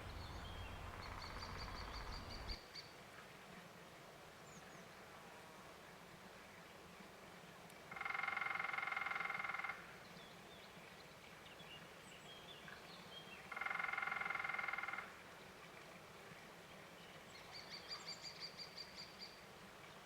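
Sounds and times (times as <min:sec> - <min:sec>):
woodpecker drumming on wood: 0:00.0 - 0:02.6
faint bird chirps: 0:00.0 - 0:02.9.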